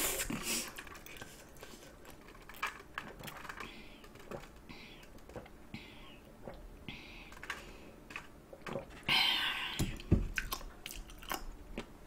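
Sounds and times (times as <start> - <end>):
wet chewing clicks and crunches: 0.7 - 5.6, 10.0 - 12.0.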